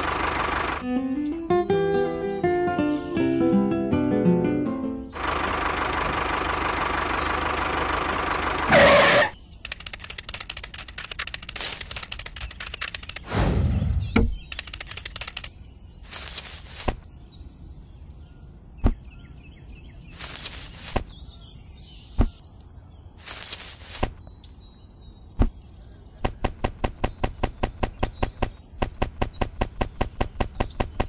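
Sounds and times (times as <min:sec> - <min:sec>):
faint birdsong: 0:00.0 - 0:03.1, 0:03.9 - 0:31.0
fast clicks: 0:09.6 - 0:13.3, 0:14.4 - 0:15.5, 0:26.2 - 0:31.0
quick even taps: 0:26.2 - 0:31.0.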